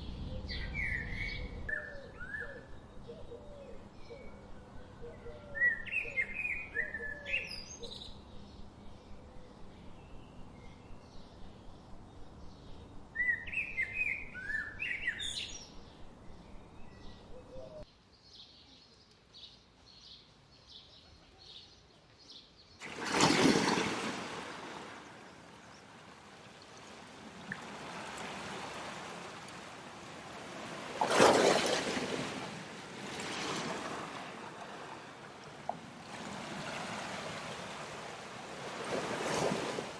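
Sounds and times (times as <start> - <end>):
steady bird chirp: 0.0 - 23.8
birds singing: 0.0 - 35.8
rushing water: 22.8 - 39.9.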